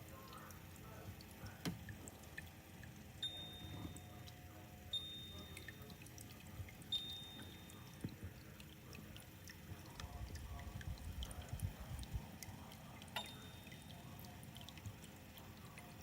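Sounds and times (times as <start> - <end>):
water dripping and trickling: 0.0 - 16.0
thin high tone: 3.2 - 6.0, 6.8 - 8.0, 13.1 - 14.2.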